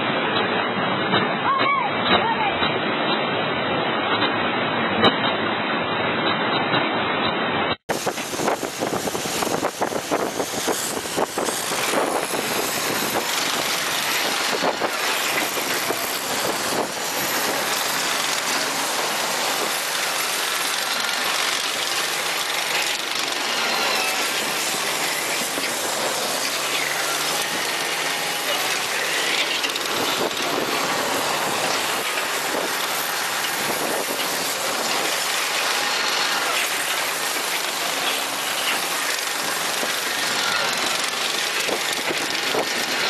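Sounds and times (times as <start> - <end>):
heavy machinery engine running: 7.4 - 43.0.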